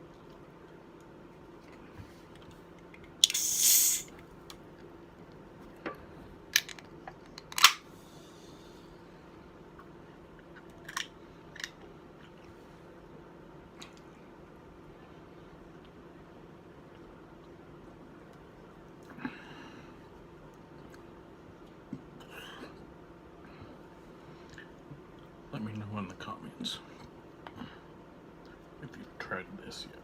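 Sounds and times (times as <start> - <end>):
hissing rustle: 3.3 - 4.1.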